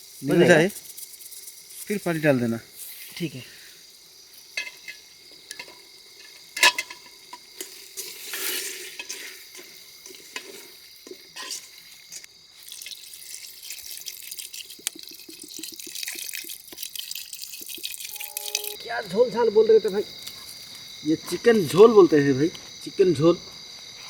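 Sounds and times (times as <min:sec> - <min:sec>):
food sizzling in oil: 0:00.0 - 0:18.9.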